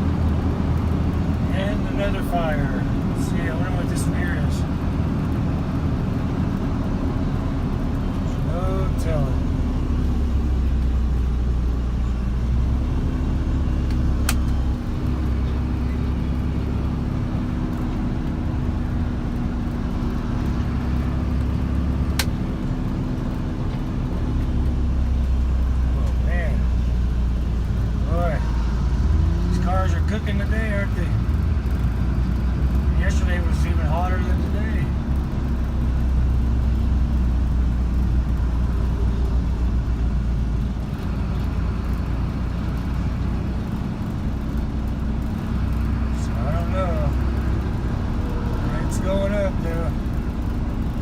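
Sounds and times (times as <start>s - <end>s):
car engine and road rumble: 0.0s - 51.0s
sharp click: 22.2s - 22.4s.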